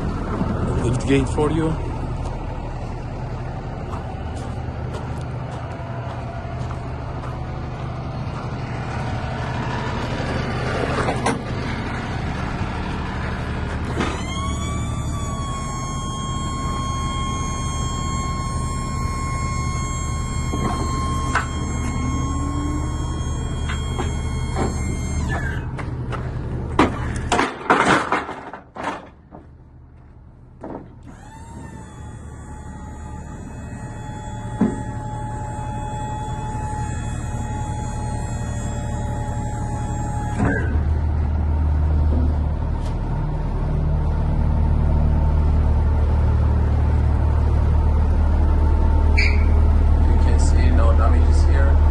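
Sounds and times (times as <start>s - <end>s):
diesel truck idling: 0.0s - 51.9s
hydraulic pump whining: 0.0s - 51.9s
short high-pitched squeak: 13.9s - 25.8s, 31.1s - 41.2s, 49.1s - 49.7s
metal clanks and knocks: 23.2s - 29.6s.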